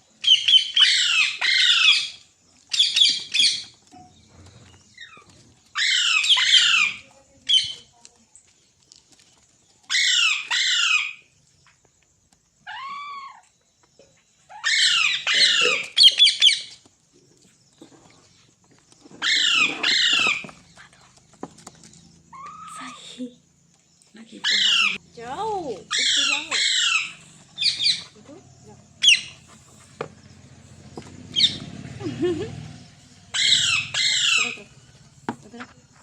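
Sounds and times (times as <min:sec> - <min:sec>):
parrot squawking: 0:00.2 - 0:03.6, 0:05.8 - 0:07.8, 0:09.9 - 0:11.2, 0:14.5 - 0:16.6, 0:19.2 - 0:20.6, 0:24.4 - 0:25.0, 0:25.9 - 0:28.2, 0:29.0 - 0:29.4, 0:31.3 - 0:31.6, 0:33.3 - 0:34.7.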